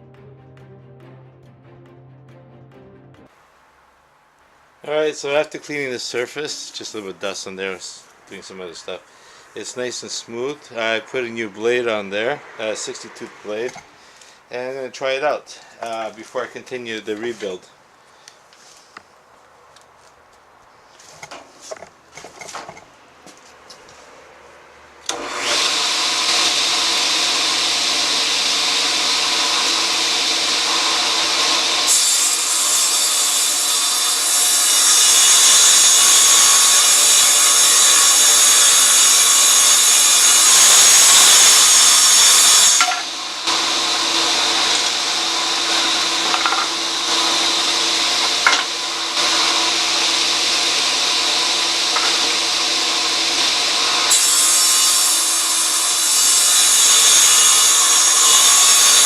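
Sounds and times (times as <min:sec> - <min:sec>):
table saw running: 0:25.0 - 0:59.0
saw blade cutting board: 0:25.1 - 0:59.0.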